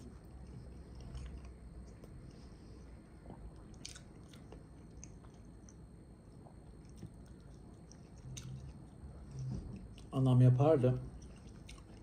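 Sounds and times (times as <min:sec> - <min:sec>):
person chewing softly: 0:00.0 - 0:10.3, 0:11.0 - 0:12.0.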